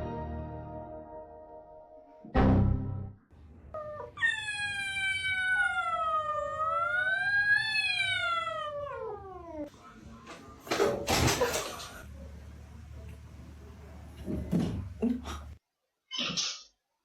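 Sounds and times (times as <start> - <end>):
cat yowling: 3.8 - 9.7.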